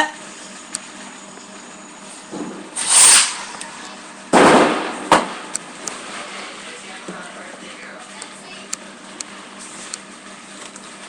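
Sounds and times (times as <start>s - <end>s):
firework bang: 2.3s - 3.6s, 4.3s - 6.3s
sharp crack: 2.4s - 3.7s, 4.3s - 6.0s
firework hiss: 2.4s - 6.6s.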